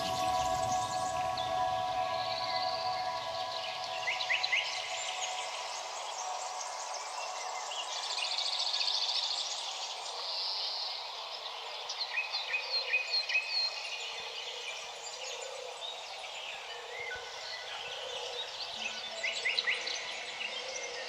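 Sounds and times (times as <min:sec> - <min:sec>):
birds singing and chirping: 0:00.0 - 0:09.6
background hiss: 0:00.0 - 0:14.2.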